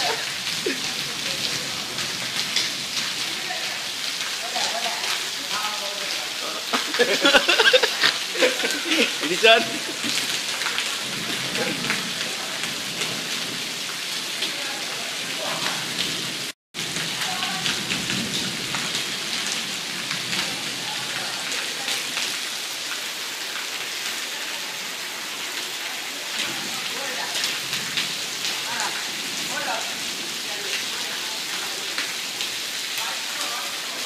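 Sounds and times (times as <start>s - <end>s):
heavy rain on wet paving: 0.0s - 34.0s.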